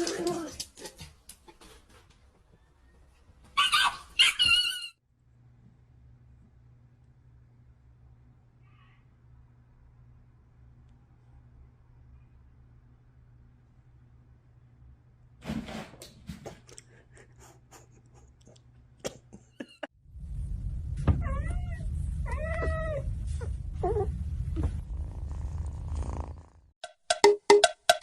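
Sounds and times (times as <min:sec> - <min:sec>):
steady low rumble: 0:20.0 - 0:26.1.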